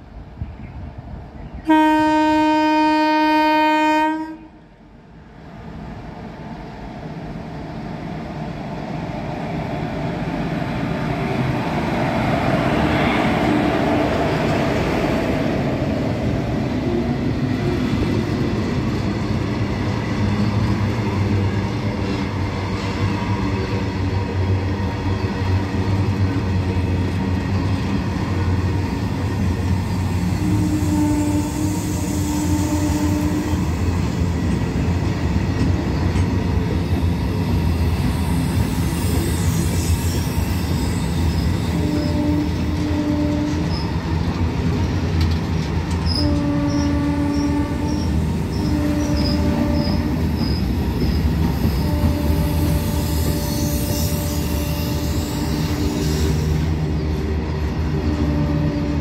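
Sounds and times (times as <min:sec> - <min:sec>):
freight train rumble: 0:00.0 - 0:59.0
locomotive horn blast: 0:01.6 - 0:04.6, 0:30.4 - 0:33.7, 0:41.6 - 0:43.7, 0:46.1 - 0:50.4, 0:51.7 - 0:56.4, 0:58.1 - 0:59.0
rail clatter: 0:41.8 - 0:53.3.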